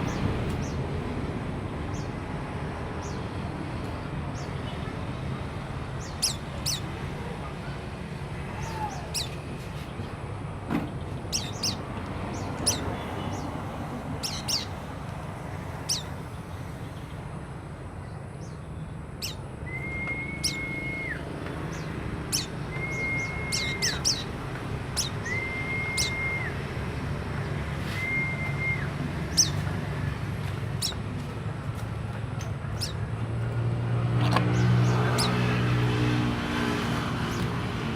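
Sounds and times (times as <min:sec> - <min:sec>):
bird chirping and whistling: 0:06.0 - 0:06.9, 0:11.3 - 0:11.8, 0:12.5 - 0:13.0, 0:14.2 - 0:14.7, 0:19.2 - 0:26.8, 0:27.8 - 0:29.6
passing vehicle engine: 0:19.8 - 0:37.9.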